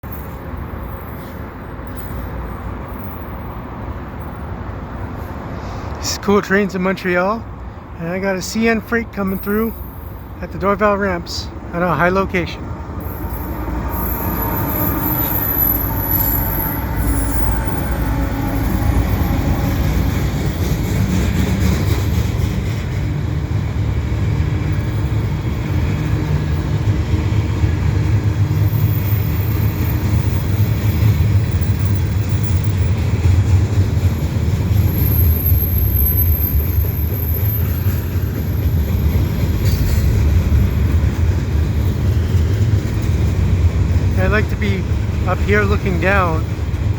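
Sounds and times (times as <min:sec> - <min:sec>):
train wheels rumbling on rails: 0:07.4 - 0:46.9
high wheel squeal: 0:13.0 - 0:20.6, 0:28.5 - 0:33.2, 0:34.7 - 0:40.9.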